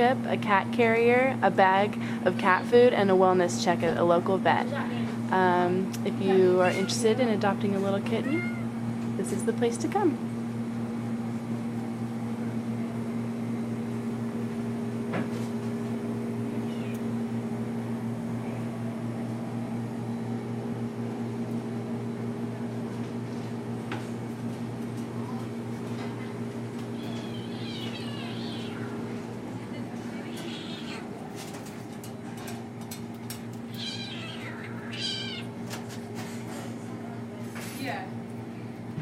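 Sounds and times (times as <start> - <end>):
low mechanical hum: 0.0 - 39.0
kitten mewing: 8.2 - 8.7, 27.0 - 29.0, 30.2 - 31.2, 33.7 - 35.5.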